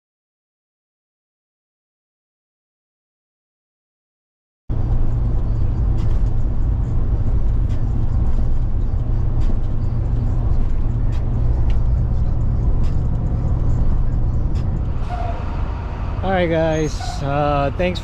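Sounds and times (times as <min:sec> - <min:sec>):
truck engine and road rumble: 0:04.7 - 0:18.0.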